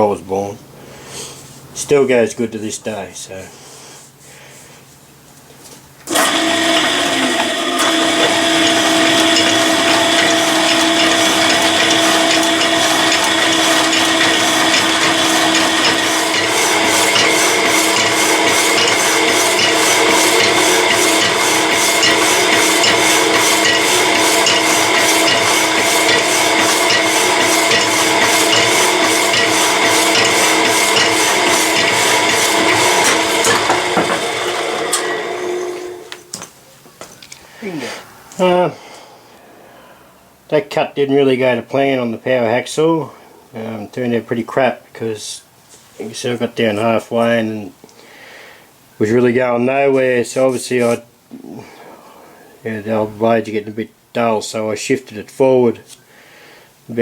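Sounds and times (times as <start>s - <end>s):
motor hum: 6.1s - 36.4s
power hacksaw cutting metal: 6.1s - 36.4s.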